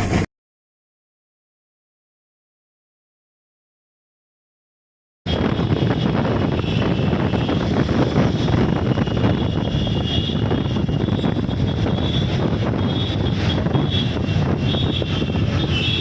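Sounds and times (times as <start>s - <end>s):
rushing air: 5.3s - 16.0s
train wheels rumbling on rail: 5.3s - 16.0s.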